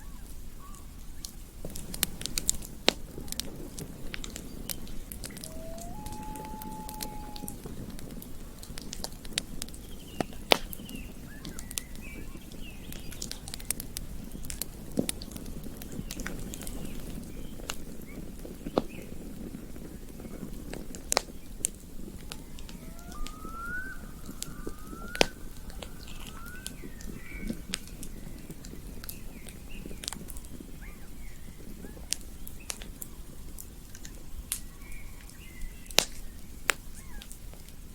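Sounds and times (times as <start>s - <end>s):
campfire crackling: 0.2s - 37.9s
fire popping: 1.0s - 35.3s, 35.9s - 37.8s
short rising chirps: 5.3s - 7.6s.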